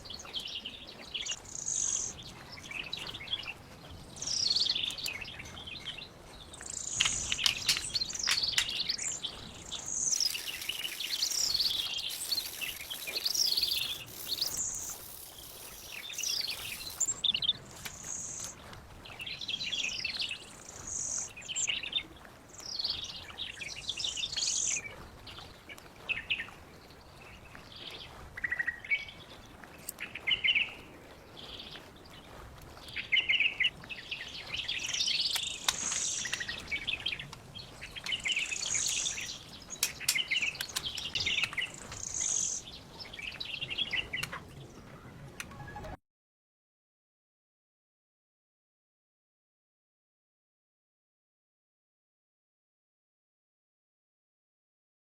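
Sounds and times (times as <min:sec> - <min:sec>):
birds chirping and singing: 0:06.6 - 0:18.5
hiss: 0:10.2 - 0:17.1.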